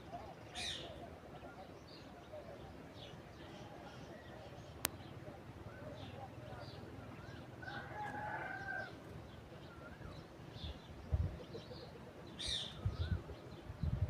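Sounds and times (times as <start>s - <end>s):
rooster crowing: 7.6s - 9.0s.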